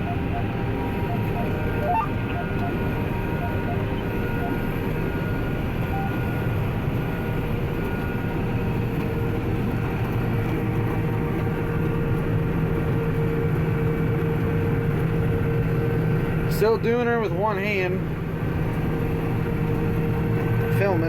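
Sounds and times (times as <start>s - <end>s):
combine harvester droning: 0.0s - 8.4s
steady whine: 0.0s - 8.4s.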